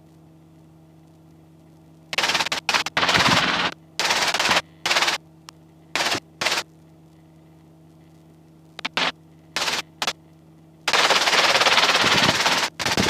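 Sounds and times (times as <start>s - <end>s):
faint steady hum: 0.0s - 13.0s
rotor and wind noise bursts: 2.1s - 5.2s, 5.9s - 6.6s, 8.8s - 10.2s, 10.9s - 13.0s.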